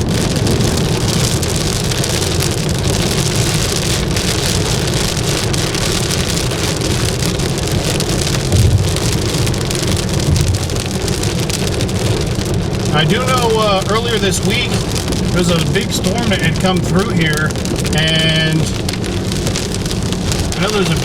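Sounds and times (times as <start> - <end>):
heavy rain on a car: 0.0 - 21.0
tyres and engine rumbling: 0.0 - 21.0
low thump: 8.5 - 11.2.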